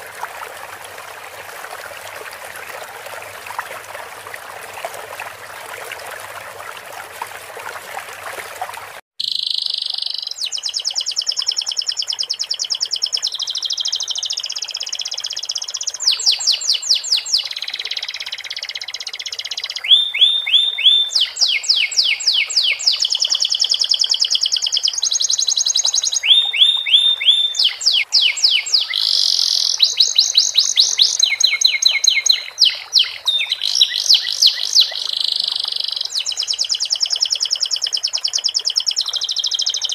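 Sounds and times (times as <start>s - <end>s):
water trickling: 0.0s - 9.0s, 9.8s - 39.9s
canary singing: 9.2s - 11.4s, 19.8s - 23.6s, 25.2s - 36.6s.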